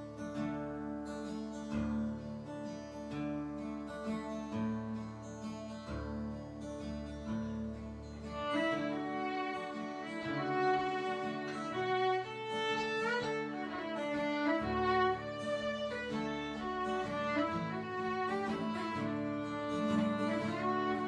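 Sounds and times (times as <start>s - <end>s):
acoustic guitar: 0.0s - 21.0s
fiddle melody: 8.0s - 21.0s.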